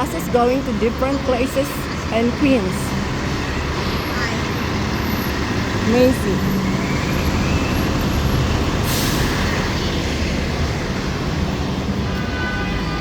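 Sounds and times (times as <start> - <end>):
busy street traffic: 0.0 - 13.0
air brake hiss: 8.8 - 9.6.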